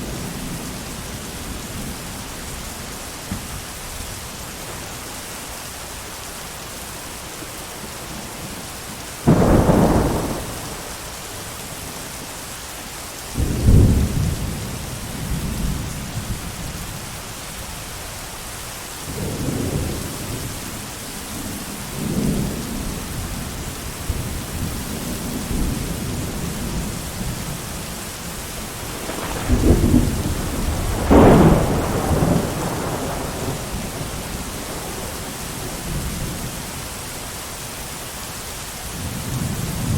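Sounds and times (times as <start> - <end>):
heavy rain hissing: 0.0 - 39.9
thunder claps and rumbling: 9.2 - 11.4, 13.3 - 16.7, 21.9 - 36.6.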